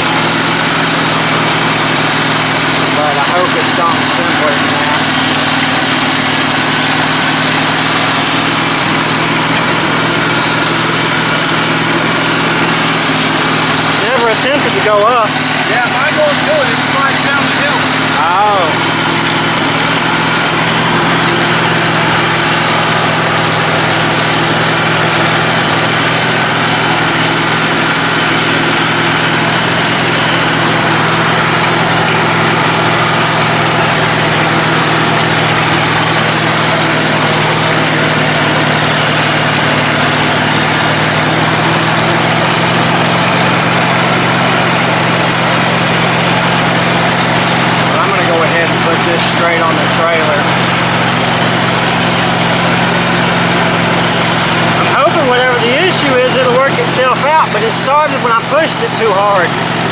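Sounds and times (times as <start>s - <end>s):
riding mower engine running: 0.0s - 59.9s.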